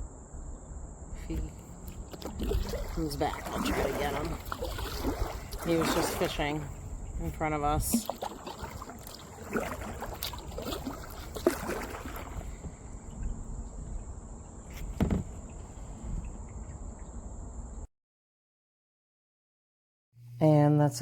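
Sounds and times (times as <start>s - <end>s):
low wind rumble: 0.0s - 17.9s
kayak paddle knocks and splashes: 1.8s - 17.1s.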